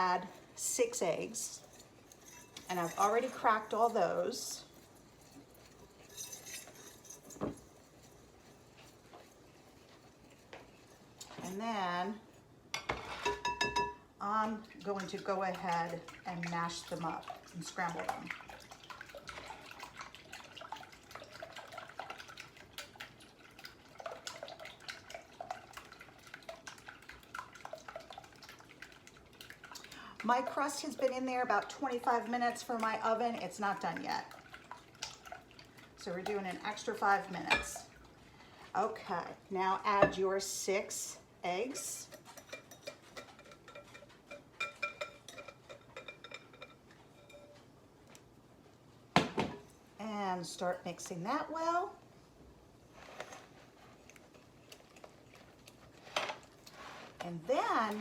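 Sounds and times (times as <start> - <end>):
utensil tapping and scraping bowl: 0.9 - 11.6, 39.9 - 40.4, 41.7 - 47.6
eggs sloshing: 14.3 - 41.1.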